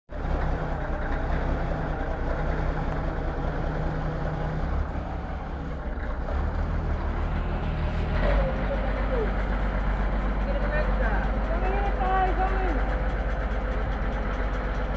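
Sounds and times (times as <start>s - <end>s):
excavator machinery rumbling: 0.1s - 14.9s.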